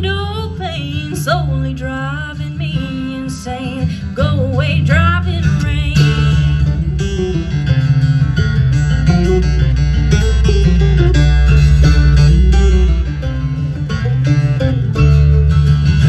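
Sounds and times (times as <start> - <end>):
bluegrass band playing: 0.0 - 16.0
picked acoustic strings: 0.0 - 16.0
steady bass line: 4.2 - 16.0.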